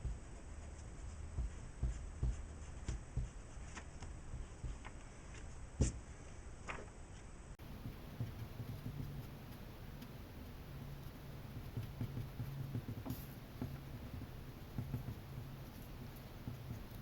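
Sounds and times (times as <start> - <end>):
pencil scratching on paper: 10.8 - 17.0.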